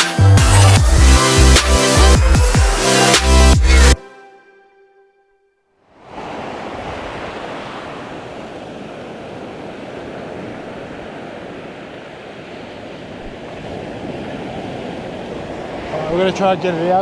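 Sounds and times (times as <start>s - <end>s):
ocean surf washing in: 6.0s - 17.0s.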